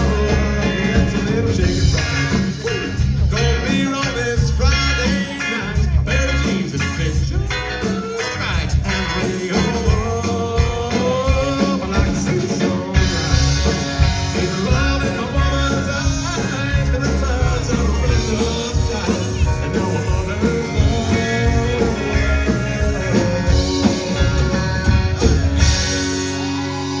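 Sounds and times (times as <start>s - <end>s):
country-rock band playing: 0.0s - 27.0s
guitar melody: 0.0s - 27.0s.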